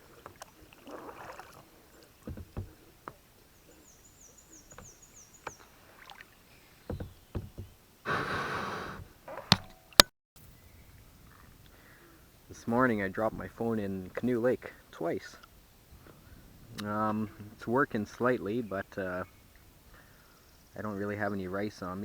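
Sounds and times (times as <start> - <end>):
paddle knocking against hull: 0.0 - 3.4, 4.5 - 7.9
water noise: 0.0 - 22.0.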